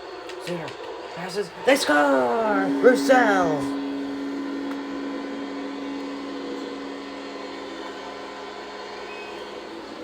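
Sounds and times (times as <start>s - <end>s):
crowd cheering: 0.0s - 10.0s
goal horn low tone: 2.2s - 9.7s.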